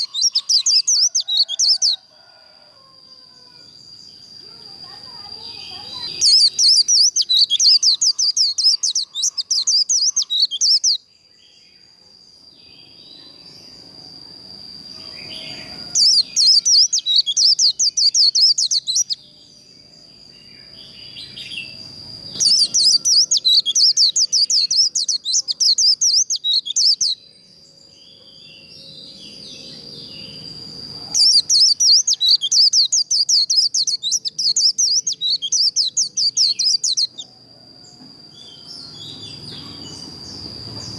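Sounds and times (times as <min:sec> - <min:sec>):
bird chirping warbles: 0:00.0 - 0:02.0, 0:04.2 - 0:11.1, 0:15.0 - 0:19.2, 0:20.6 - 0:37.3.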